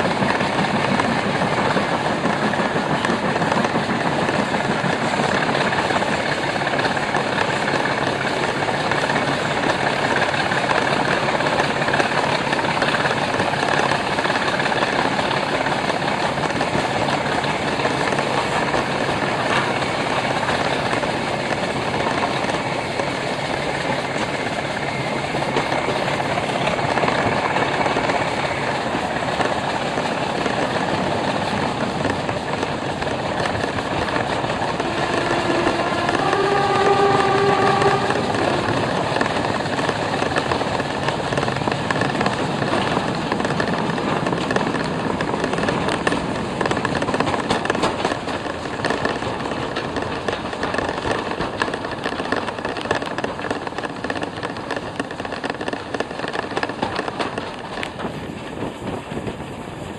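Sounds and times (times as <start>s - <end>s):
train engine and wheels rumbling: 0.0s - 59.9s
train warning horn: 34.4s - 39.5s.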